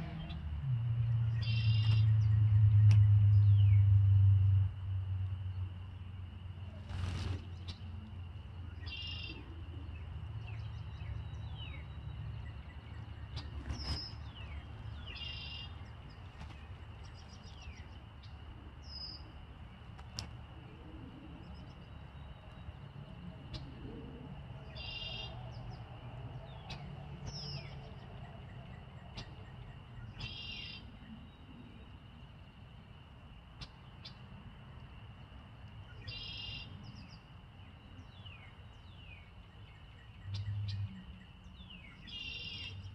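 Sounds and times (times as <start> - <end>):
low background rumble: 0.0 - 33.2
songbirds chirping: 0.0 - 42.9.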